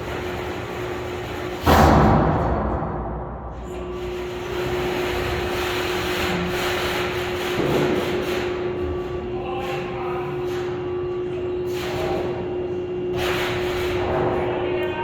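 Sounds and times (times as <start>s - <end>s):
crane machinery humming: 0.0s - 15.0s
loud sudden impact: 1.6s - 3.8s.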